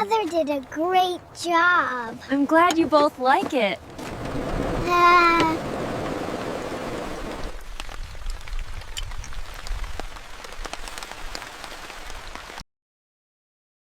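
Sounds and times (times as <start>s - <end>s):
steady rain: 3.8s - 12.6s
raindrop ticks: 7.3s - 12.6s.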